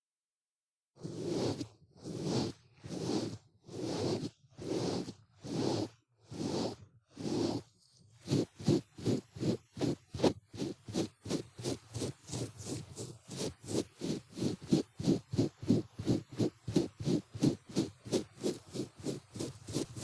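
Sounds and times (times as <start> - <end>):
ear pick scraping in ear: 1.1 - 7.6.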